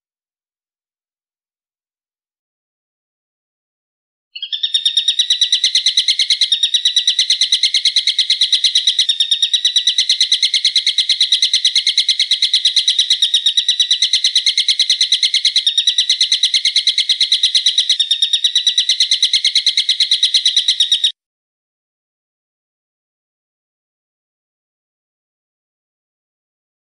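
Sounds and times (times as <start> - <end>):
bird call rapid high notes: 4.4 - 21.1.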